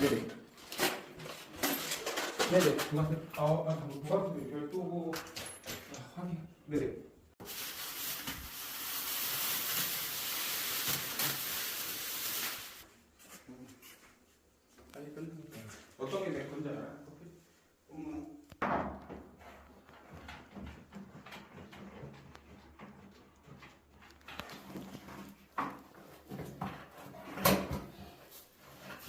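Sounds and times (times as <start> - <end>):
steady hiss: 7.4 - 12.8.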